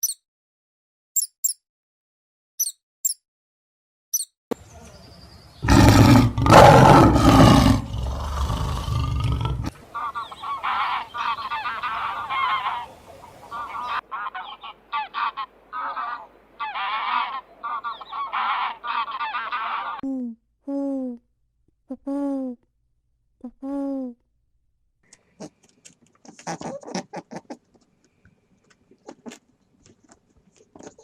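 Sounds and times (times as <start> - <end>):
animal honking calls: 5.6 - 20.0.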